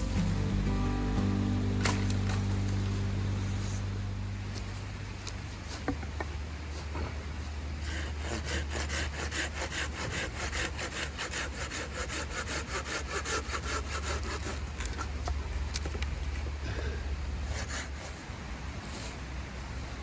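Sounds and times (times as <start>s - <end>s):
hand saw cutting firewood: 7.7s - 15.4s, 17.4s - 18.4s.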